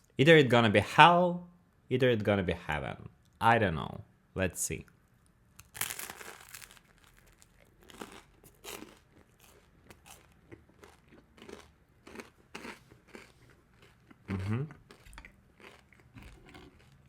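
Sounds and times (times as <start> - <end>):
person chewing crunchy food: 5.6 - 17.0.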